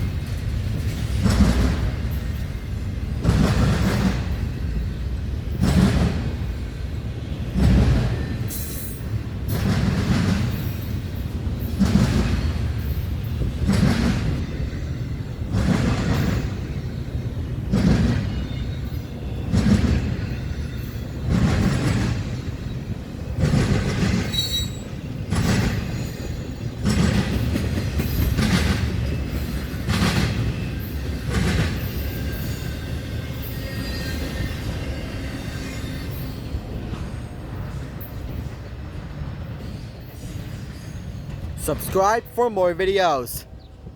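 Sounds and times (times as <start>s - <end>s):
train wheels clacking over rail joints: 0.0s - 41.6s
faint wheel squeal: 24.3s - 25.0s.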